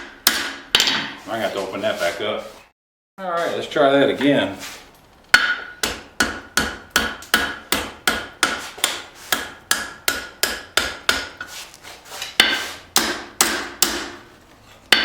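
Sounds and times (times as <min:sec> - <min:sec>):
hammer striking hot steel: 0:00.0 - 0:01.2, 0:05.3 - 0:11.5, 0:12.4 - 0:14.2.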